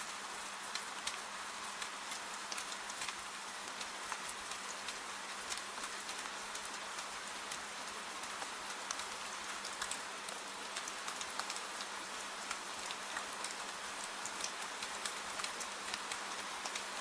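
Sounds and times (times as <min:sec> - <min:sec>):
gentle rain falling: 0:00.0 - 0:17.0.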